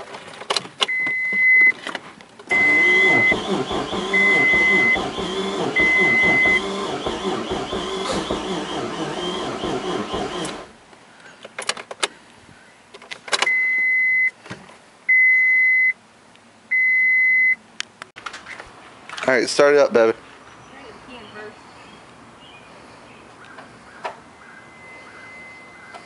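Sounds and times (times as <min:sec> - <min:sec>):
car engine cranking: 0:01.7 - 0:10.8.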